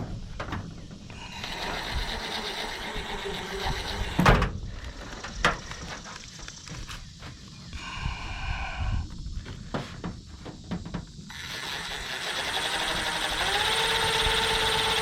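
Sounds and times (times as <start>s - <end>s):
power screwdriver running: 1.3s - 4.2s, 11.3s - 15.0s.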